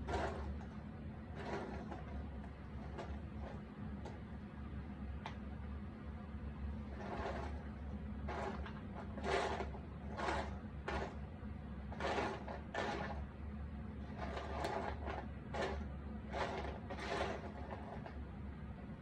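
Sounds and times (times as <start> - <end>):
steady low hum: 0.0 - 19.0
puzzle pieces rustling and scraping: 1.4 - 2.2, 6.9 - 7.6, 8.3 - 11.2, 11.9 - 13.2, 14.1 - 18.2.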